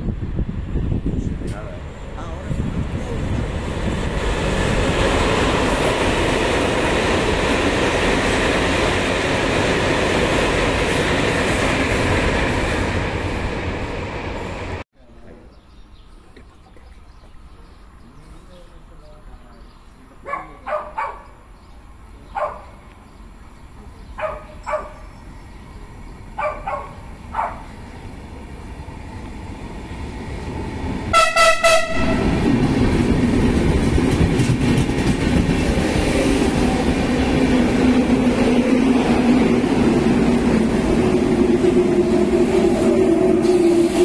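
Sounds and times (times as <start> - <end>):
train rumbling past: 0.0 - 14.8, 17.3 - 44.0
train horn blast: 31.1 - 32.4.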